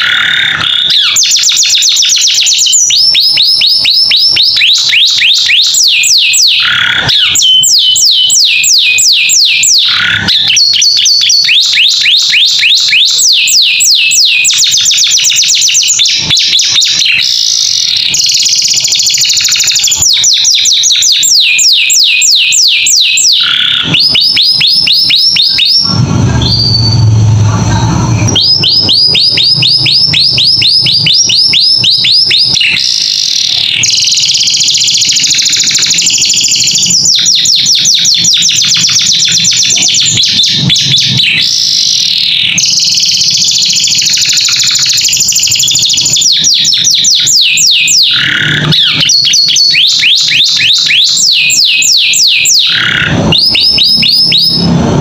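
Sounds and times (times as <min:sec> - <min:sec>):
canary singing: 0:00.0 - 0:55.0
low rumble: 0:25.8 - 0:30.2.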